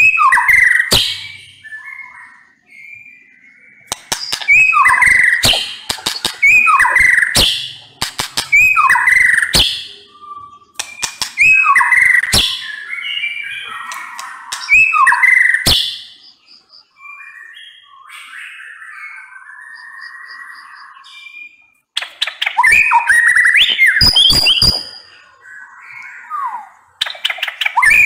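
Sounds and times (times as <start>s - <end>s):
bird singing clicks and whistles: 0.0s - 1.9s, 3.8s - 10.0s, 10.7s - 16.4s, 22.0s - 25.2s, 26.0s - 28.0s.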